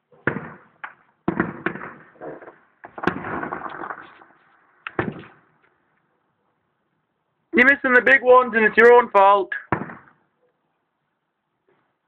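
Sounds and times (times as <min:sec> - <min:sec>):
distant fireworks bangs: 0:00.2 - 0:05.5
fireworks crackling: 0:02.8 - 0:05.5.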